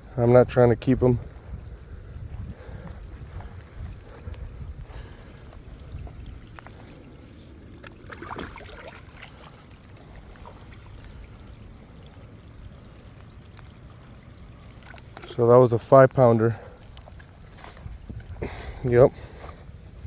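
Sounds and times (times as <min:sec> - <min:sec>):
wind rumble on microphone: 0:00.0 - 0:08.7, 0:16.5 - 0:20.0
faint clicks and trickles: 0:02.8 - 0:20.0
fish splashing into water: 0:07.6 - 0:15.3.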